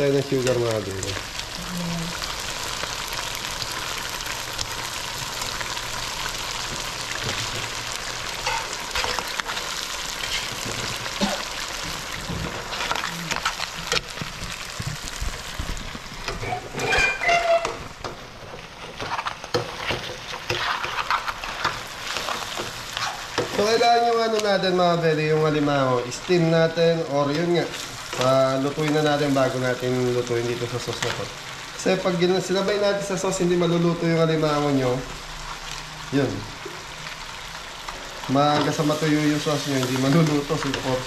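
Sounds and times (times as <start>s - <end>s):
crabs sizzling in a wok: 0.0s - 41.0s
metal spatula scraping a pan: 16.3s - 17.9s, 18.9s - 22.4s.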